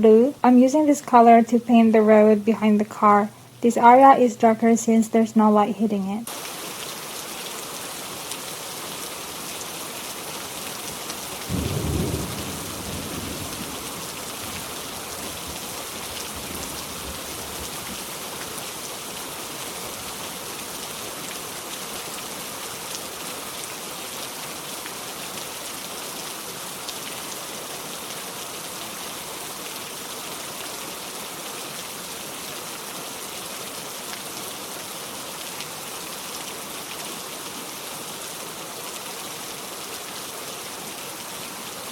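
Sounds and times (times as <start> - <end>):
steady rain: 6.2 - 41.9
thunder rumble: 11.5 - 15.6.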